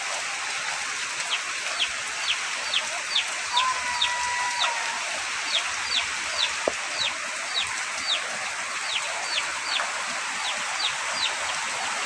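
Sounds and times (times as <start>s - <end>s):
chicks peeping: 1.8s - 4.9s, 5.5s - 11.6s.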